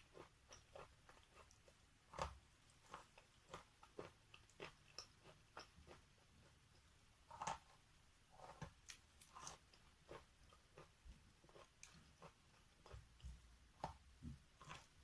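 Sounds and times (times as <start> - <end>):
chalk being chewed: 8.4 - 13.0.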